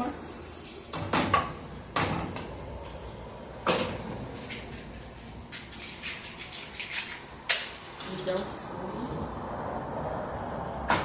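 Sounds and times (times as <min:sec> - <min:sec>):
kitchen knocks and rustles: 0:00.6 - 0:03.0.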